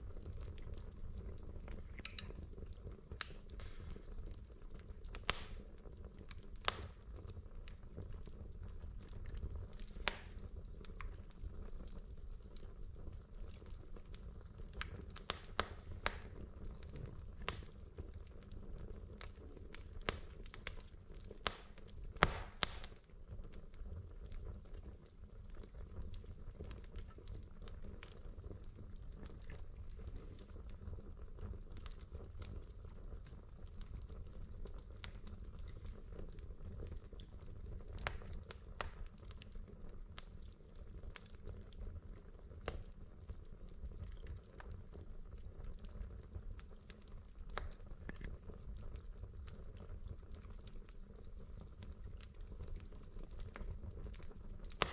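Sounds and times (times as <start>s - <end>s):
logs crackling and popping: 0.0s - 54.9s
low rumble of flames: 0.0s - 54.9s.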